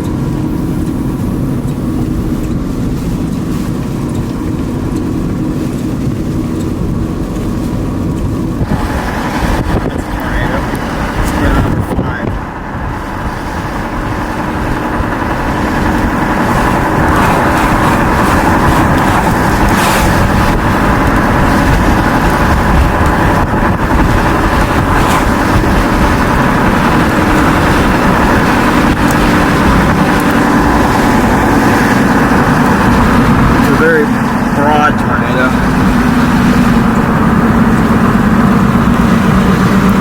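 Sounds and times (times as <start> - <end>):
vehicle engine and road noise: 0.0 - 40.0.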